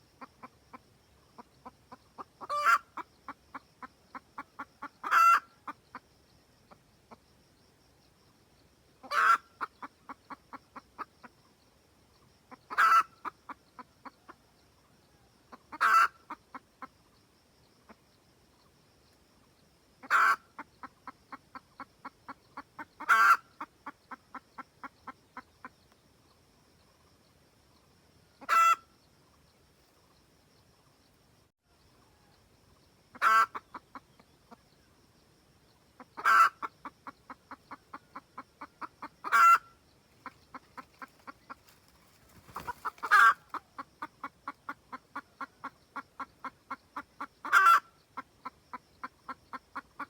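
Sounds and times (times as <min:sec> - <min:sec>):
hen cackling: 0:01.4 - 0:06.0, 0:09.0 - 0:11.1, 0:12.5 - 0:14.4, 0:15.5 - 0:16.9, 0:20.0 - 0:25.5, 0:28.4 - 0:28.9, 0:33.1 - 0:34.6, 0:36.0 - 0:50.0.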